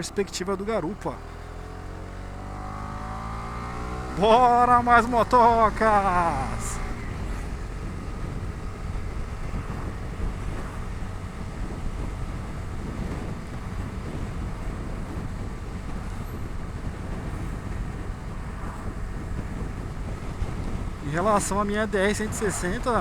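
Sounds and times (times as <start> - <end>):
motorcycle engine running: 0.0 - 23.0
wind noise on microphone: 1.5 - 23.0.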